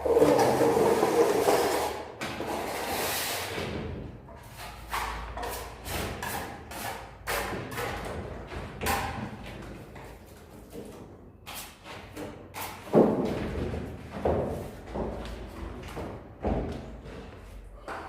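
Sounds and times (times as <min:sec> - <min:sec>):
trowel scraping wet plaster: 0:00.0 - 0:03.5, 0:04.4 - 0:08.1.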